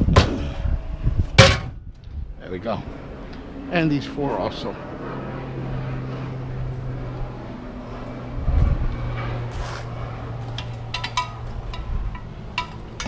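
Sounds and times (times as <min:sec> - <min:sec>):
steady low hum: 0:00.0 - 0:13.0
heavy thud: 0:01.3 - 0:01.8
metallic clanks: 0:10.5 - 0:13.0.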